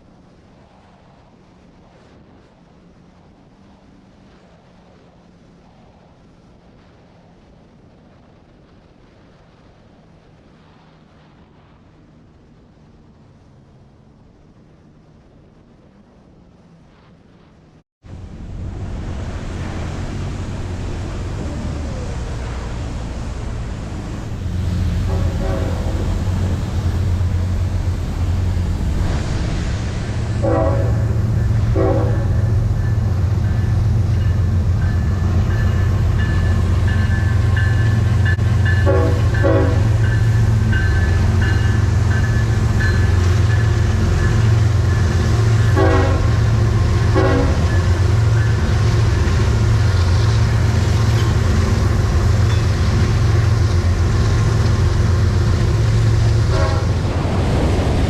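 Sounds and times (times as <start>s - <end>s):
low engine drone: 18.1s - 58.0s
train horn blasts: 24.6s - 28.4s, 30.3s - 50.4s, 56.2s - 57.1s.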